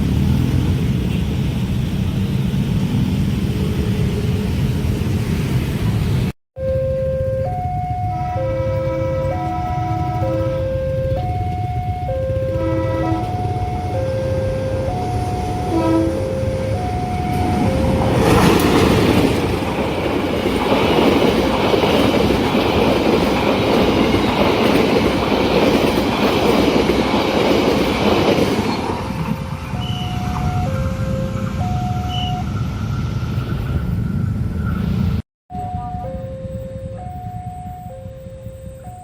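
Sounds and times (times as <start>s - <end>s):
train passing at speed: 0.0s - 35.2s
two-tone level crossing chime: 35.5s - 39.0s.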